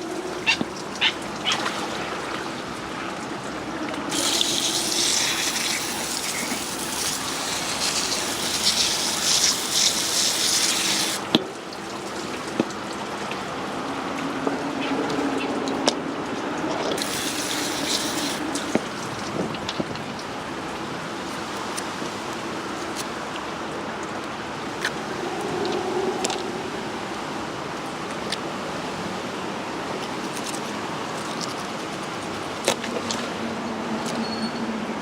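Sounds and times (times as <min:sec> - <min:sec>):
running splashing water: 0:00.0 - 0:03.4, 0:04.0 - 0:13.9, 0:16.7 - 0:20.8.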